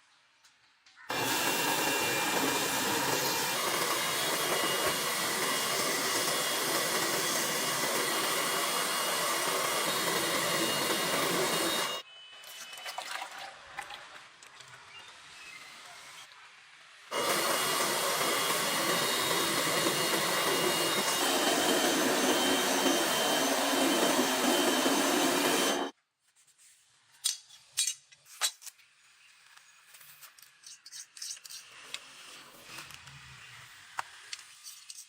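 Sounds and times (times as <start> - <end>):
power tool running: 1.1 - 12.0, 17.1 - 25.9.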